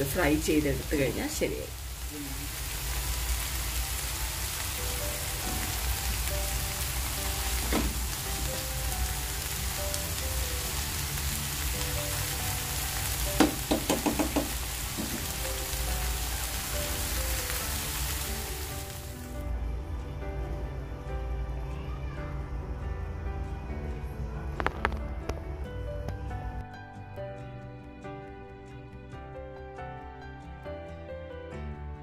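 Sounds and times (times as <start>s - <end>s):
food sizzling in a pan: 0.0s - 19.5s
spatula knocking against pan: 13.4s - 15.2s.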